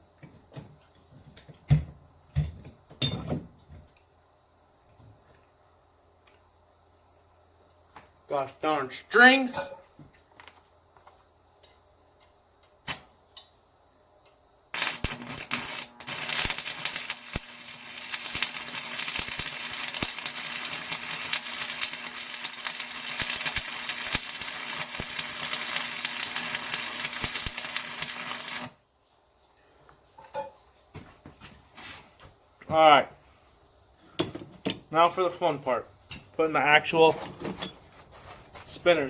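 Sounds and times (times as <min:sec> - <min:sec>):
low electrical hum: 0:00.1 - 0:39.0
welding arc crackling: 0:14.7 - 0:28.8.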